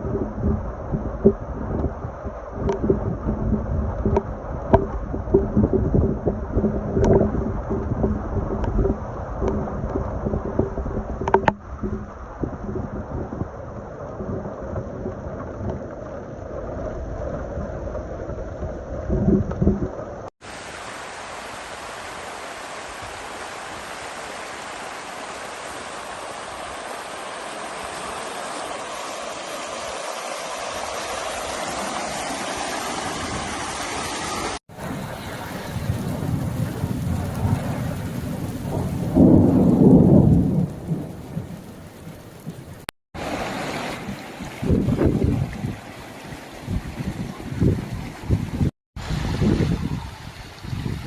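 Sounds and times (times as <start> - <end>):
heavy rain falling: 20.4 - 46.8.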